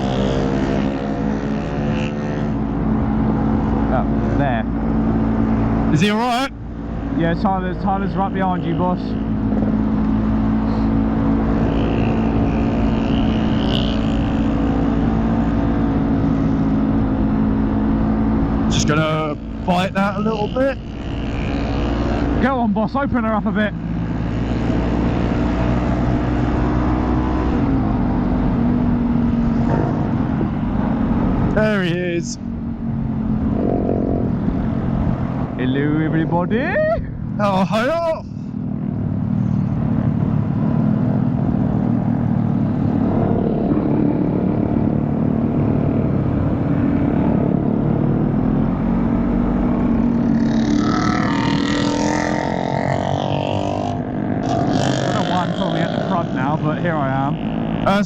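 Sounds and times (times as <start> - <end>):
motorcycle engine running: 0.0 - 58.0
wind rushing over microphone: 9.2 - 58.0
wind rumble on microphone: 23.7 - 37.5.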